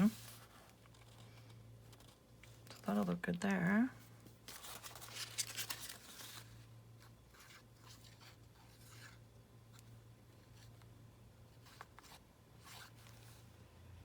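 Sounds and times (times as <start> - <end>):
paper rustling: 4.2 - 10.9.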